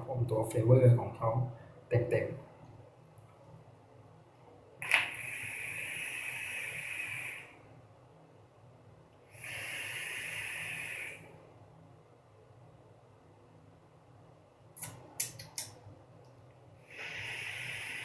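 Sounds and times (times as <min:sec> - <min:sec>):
air hissing through atomizer: 0:04.8 - 0:07.6, 0:09.3 - 0:11.4, 0:16.8 - 0:18.0
sharp click: 0:14.8 - 0:15.8.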